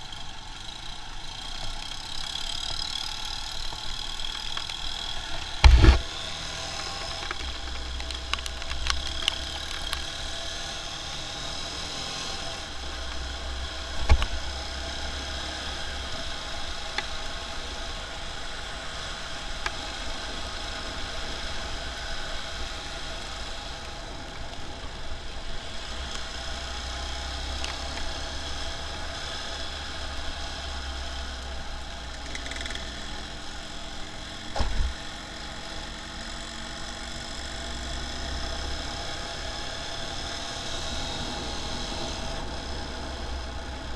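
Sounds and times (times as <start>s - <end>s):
motorcycle engine and road noise: 0.0s - 43.9s
brief thumps: 5.6s - 6.0s.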